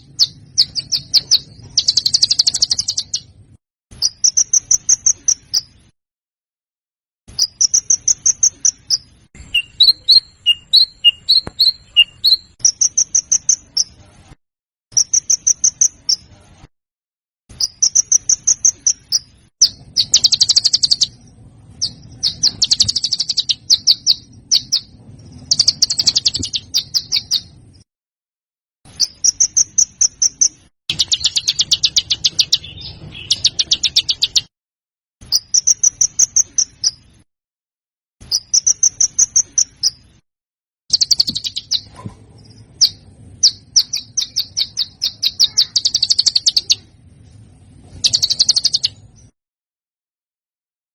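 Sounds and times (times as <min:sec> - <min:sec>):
songbird chattering: 0:00.0 - 0:03.3, 0:07.4 - 0:14.0, 0:17.6 - 0:21.2, 0:21.8 - 0:27.5, 0:29.0 - 0:34.5, 0:40.9 - 0:41.9, 0:42.8 - 0:46.9, 0:48.0 - 0:49.0
whistled bird notes: 0:04.0 - 0:05.8, 0:07.3 - 0:14.0, 0:17.5 - 0:21.2, 0:21.8 - 0:27.5, 0:28.9 - 0:34.5, 0:38.2 - 0:40.0, 0:40.9 - 0:41.9, 0:42.8 - 0:46.9, 0:48.0 - 0:49.3.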